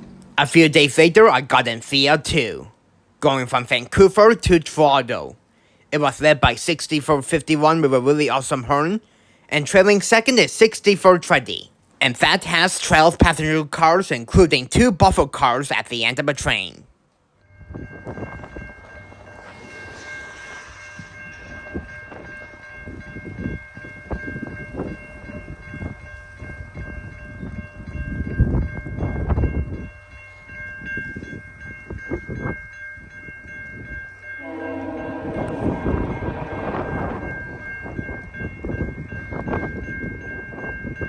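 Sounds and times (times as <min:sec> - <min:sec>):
train rumbling and clattering: 0:00.0 - 0:01.2, 0:17.5 - 0:41.0
steady high ringing: 0:16.0 - 0:41.0
multi-note air horn: 0:34.4 - 0:37.6.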